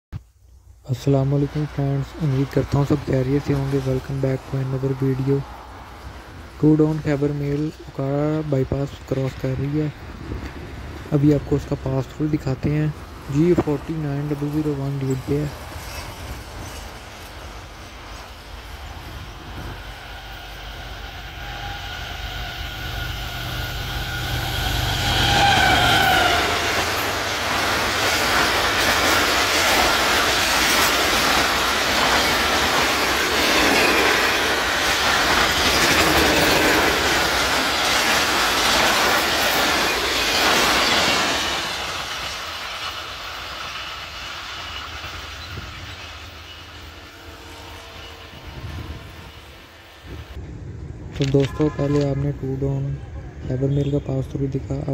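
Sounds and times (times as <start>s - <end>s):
diesel locomotive passing: 0.9s - 54.9s
wheels clattering on rails: 25.0s - 47.0s.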